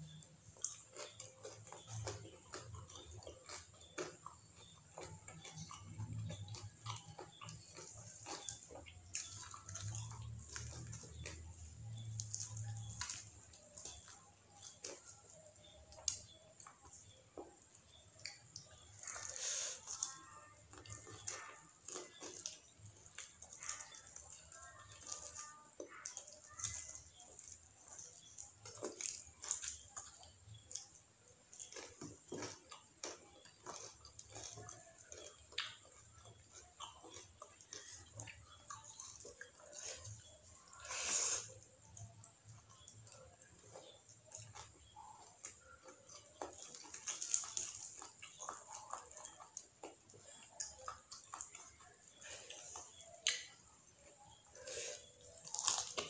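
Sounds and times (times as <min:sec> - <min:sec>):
person chewing crispy food: 0:00.0 - 0:56.0
mouth clicks and smacks: 0:42.9 - 0:56.0
wet mouth clicks: 0:52.7 - 0:53.5.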